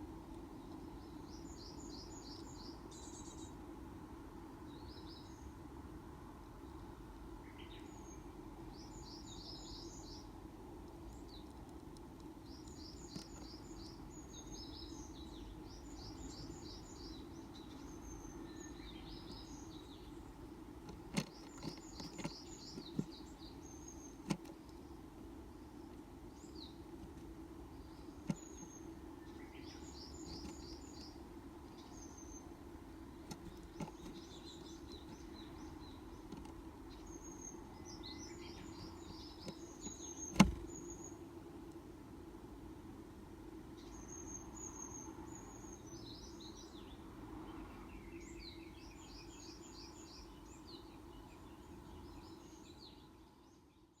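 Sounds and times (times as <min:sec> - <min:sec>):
tits chirping: 0:00.6 - 0:03.6, 0:10.9 - 0:41.3.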